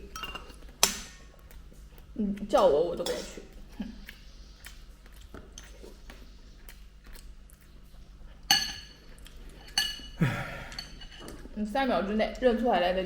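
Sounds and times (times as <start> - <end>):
tableware clinking: 0.0 - 0.6, 8.5 - 9.0, 9.6 - 11.4.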